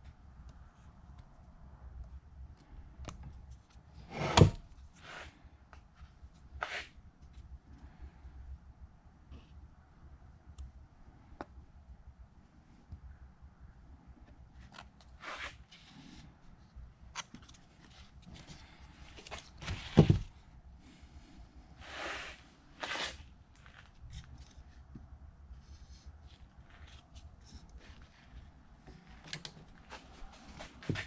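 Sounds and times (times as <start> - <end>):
rustling scrapes: 21.8 - 24.8.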